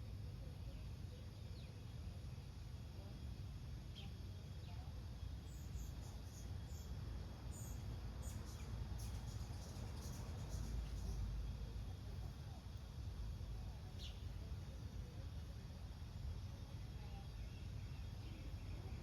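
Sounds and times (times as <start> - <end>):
faint bird chirps: 3.9 - 11.7, 13.8 - 14.8.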